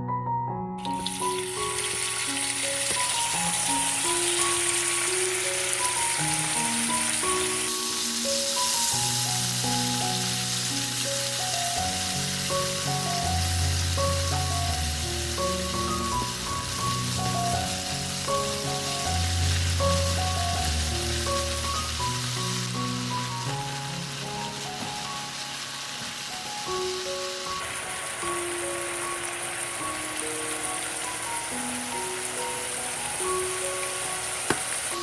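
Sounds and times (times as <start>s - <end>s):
background music: 0.0s - 35.0s
food sizzling in oil: 0.8s - 35.0s.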